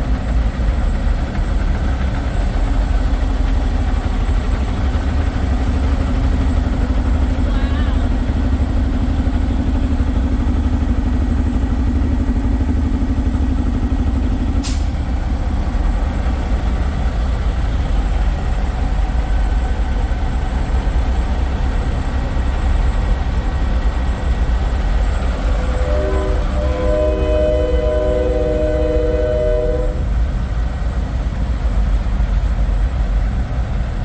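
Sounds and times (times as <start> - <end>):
diesel truck engines idling: 0.0 - 34.0
higher hum: 23.8 - 30.4.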